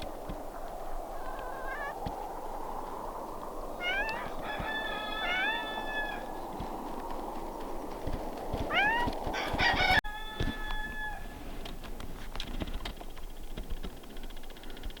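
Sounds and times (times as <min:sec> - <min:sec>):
animal calls: 0:00.0 - 0:11.6.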